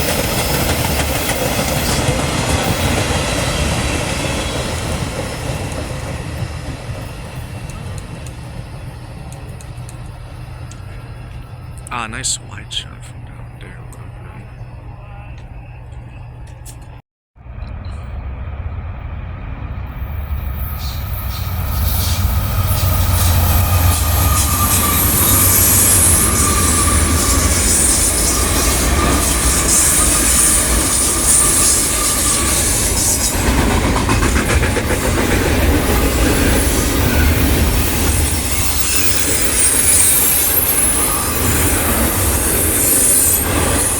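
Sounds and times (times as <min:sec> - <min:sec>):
train rumbling past: 0:00.0 - 0:16.8, 0:17.4 - 0:43.9
wheel squeal: 0:36.2 - 0:43.9.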